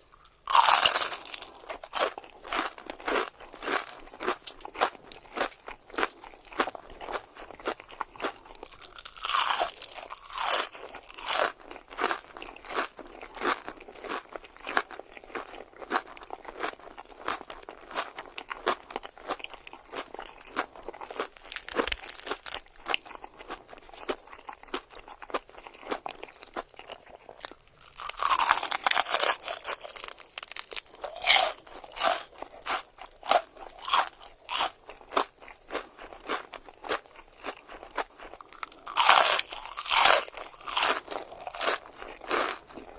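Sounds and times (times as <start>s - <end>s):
person chewing crunchy food: 0.0s - 42.9s.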